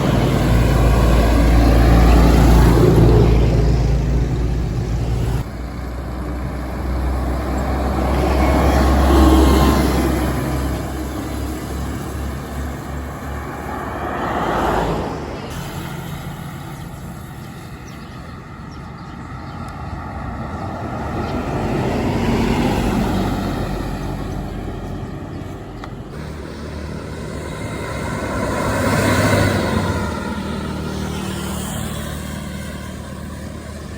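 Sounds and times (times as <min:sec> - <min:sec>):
heavy engine low rumble: 0:00.0 - 0:33.9
road traffic passing: 0:00.0 - 0:33.9.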